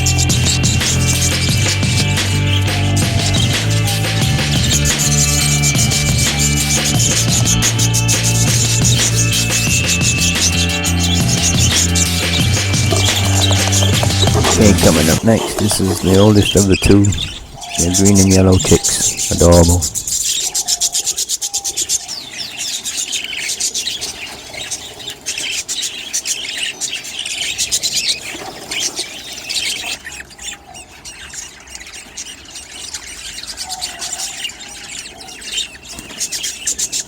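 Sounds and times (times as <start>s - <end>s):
high squeaky chick chirps: 0.0s - 28.3s
chicks scratching and rustling: 0.0s - 37.0s.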